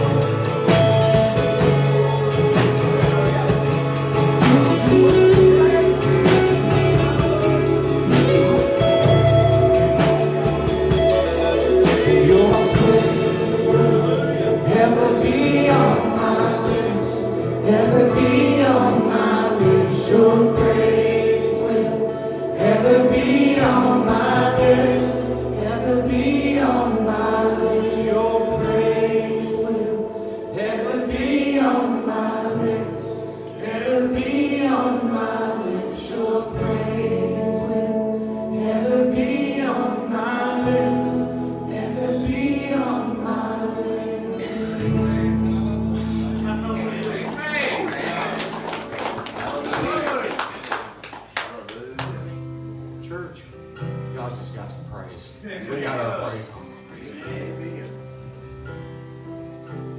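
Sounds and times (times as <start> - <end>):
drums: 0.0 - 29.8, 36.0 - 37.9
people singing gospel: 0.0 - 50.9
worship band playing: 0.0 - 59.9.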